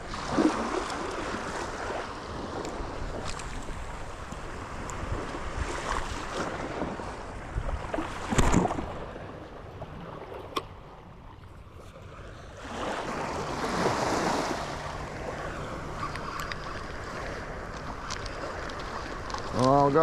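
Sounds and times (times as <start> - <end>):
wind buffeting microphone: 0.0 - 10.1
surf breaking on beach: 12.6 - 20.0.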